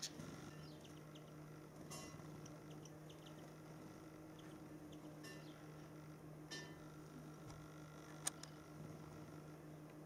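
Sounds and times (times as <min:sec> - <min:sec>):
small birds chirping: 0:00.0 - 0:08.6
low steady hum: 0:00.0 - 0:10.0.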